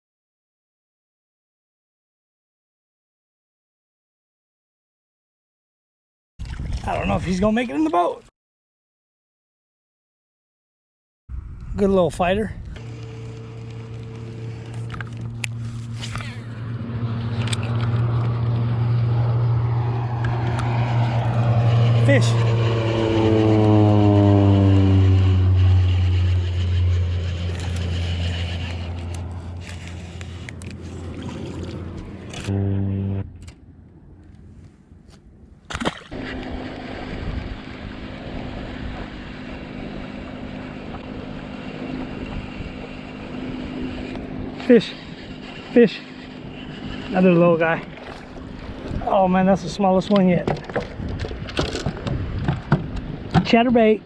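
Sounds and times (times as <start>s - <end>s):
wind noise on microphone: 6.4s - 7.4s, 11.3s - 13.0s, 36.1s - 40.2s, 50.4s - 53.5s
boat motor humming: 12.6s - 34.4s, 35.7s - 54.0s
loud whoosh: 18.7s - 28.7s, 32.2s - 33.4s.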